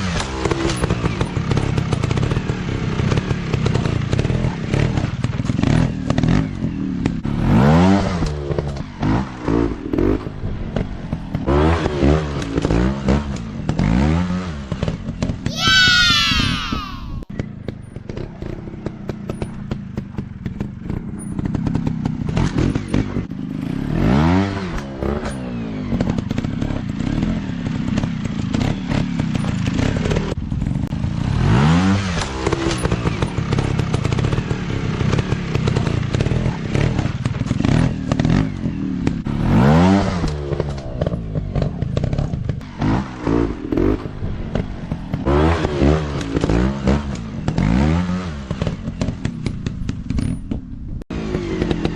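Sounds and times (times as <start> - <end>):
dirt bike engines revving: 0.0 - 17.2, 51.1 - 51.9.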